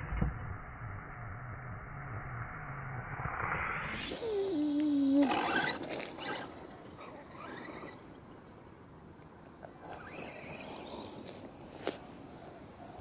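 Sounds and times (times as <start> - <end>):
electric rc truck whine: 4.1 - 8.8, 9.6 - 13.0
tyres on gravel: 4.5 - 8.9, 9.6 - 12.5.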